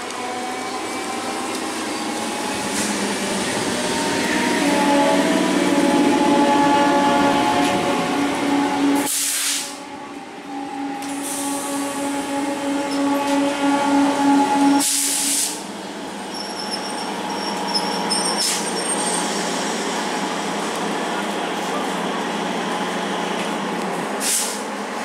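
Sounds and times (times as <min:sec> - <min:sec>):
train passing on tracks: 0:00.0 - 0:25.0
faint high wheel squeal: 0:16.2 - 0:19.4.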